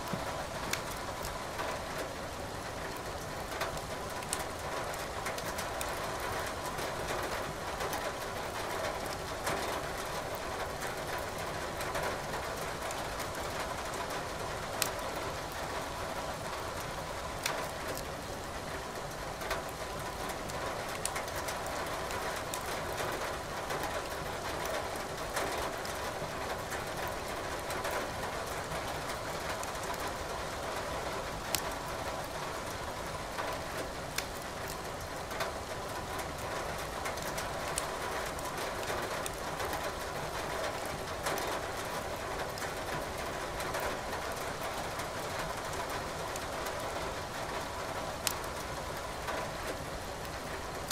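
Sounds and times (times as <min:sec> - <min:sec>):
rain hiss: 0:00.0 - 0:50.9
firewood crackling and popping: 0:00.1 - 0:01.4, 0:03.7 - 0:06.0, 0:14.8 - 0:15.1, 0:17.4 - 0:18.1, 0:20.9 - 0:22.7, 0:31.5 - 0:31.8, 0:34.1 - 0:34.8, 0:38.3 - 0:39.4, 0:48.2 - 0:48.6.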